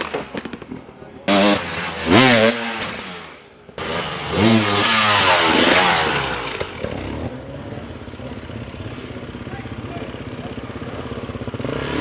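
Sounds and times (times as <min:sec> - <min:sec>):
dirt bike engine revving: 0:00.0 - 0:00.6, 0:01.3 - 0:07.3, 0:11.3 - 0:12.0.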